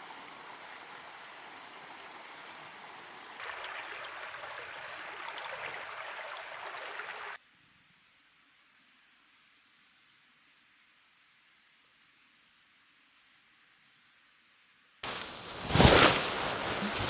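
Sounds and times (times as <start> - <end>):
steady hiss: 0.0 - 3.4, 15.0 - 17.0
rushing noise with small ticks: 15.0 - 17.0.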